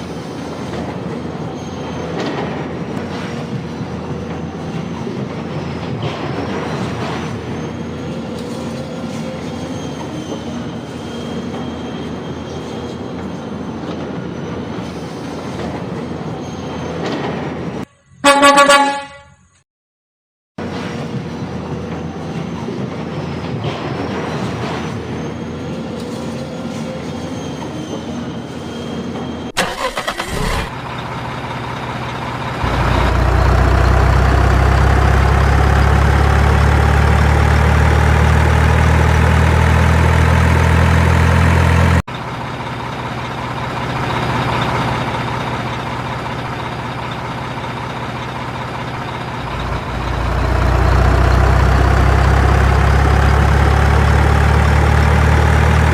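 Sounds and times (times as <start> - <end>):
truck engine rattling start-up: 29.5 - 55.9
truck engine running: 29.5 - 55.9.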